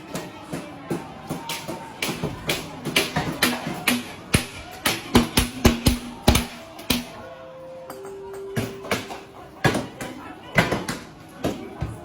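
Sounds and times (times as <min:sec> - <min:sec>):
sharp bangs and knocks: 0:02.0 - 0:07.1.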